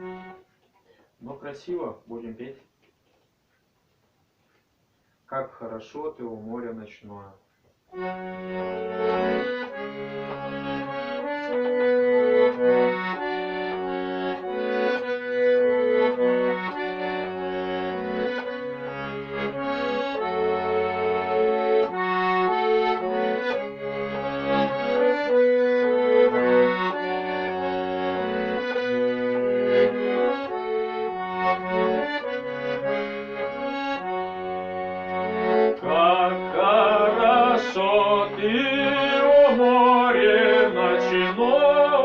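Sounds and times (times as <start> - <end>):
accordion playing chords and melody: 0.0 - 0.6, 7.9 - 42.0
man singing: 35.8 - 42.0.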